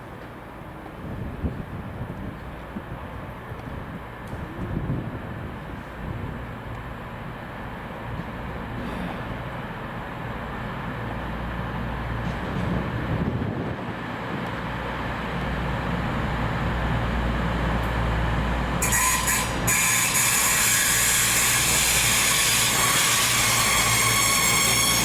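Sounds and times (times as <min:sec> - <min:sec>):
train rumbling past: 0:00.0 - 0:25.0
metallic wheel squeal: 0:18.8 - 0:25.0.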